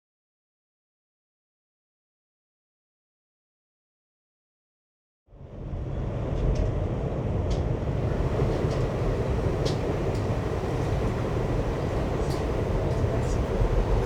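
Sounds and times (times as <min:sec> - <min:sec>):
train rumbling on tracks: 0:05.3 - 0:14.0
wheels squeaking on rails: 0:08.1 - 0:14.0.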